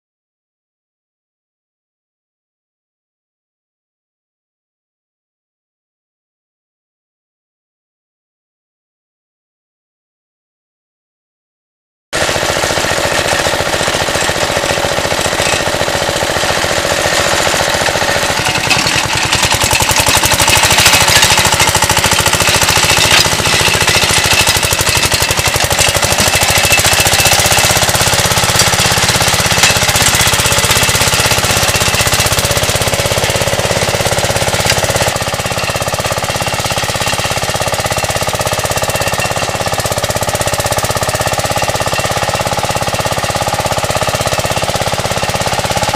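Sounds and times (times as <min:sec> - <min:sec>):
tractor engine knocking: 0:12.2 - 0:45.9.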